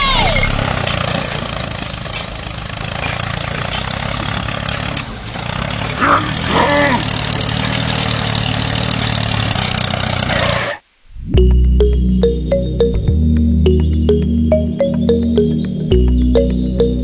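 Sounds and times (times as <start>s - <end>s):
tractor motor running: 0.0s - 10.7s.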